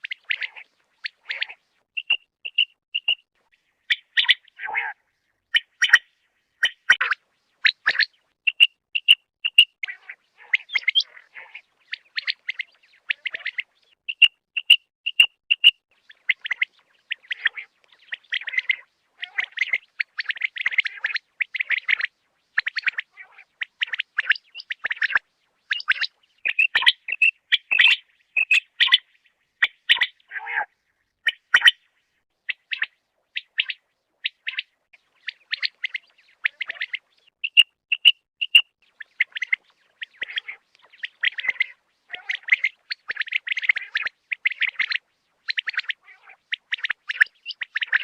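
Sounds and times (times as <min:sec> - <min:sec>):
quail chirping calls: 0:00.0 - 0:30.7, 0:31.3 - 0:31.9, 0:32.5 - 0:48.0.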